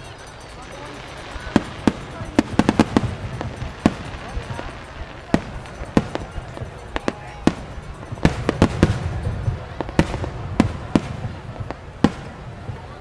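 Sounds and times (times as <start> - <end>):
fireworks bursting with sharp bangs: 0.6 - 13.0.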